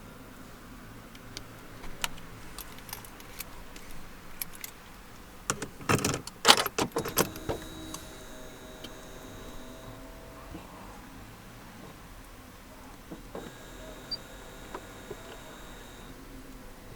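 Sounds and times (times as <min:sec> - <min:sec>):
car keys jangling: 0:01.2 - 0:10.3.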